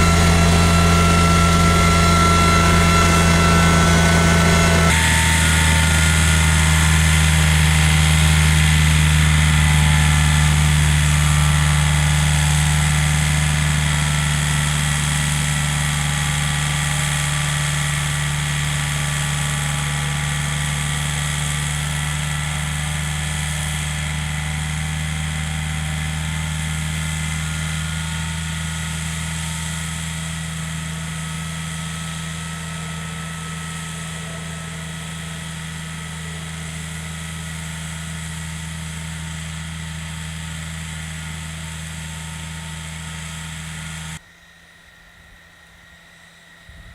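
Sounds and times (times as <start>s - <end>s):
tractor engine running: 0.0s - 44.2s.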